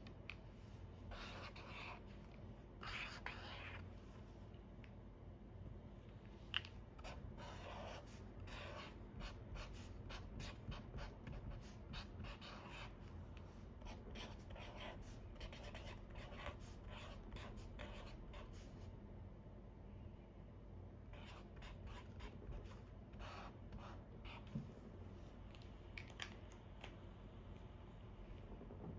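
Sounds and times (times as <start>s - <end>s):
marker scratching on paper: 0.6s - 4.3s, 7.0s - 18.8s, 21.1s - 24.8s.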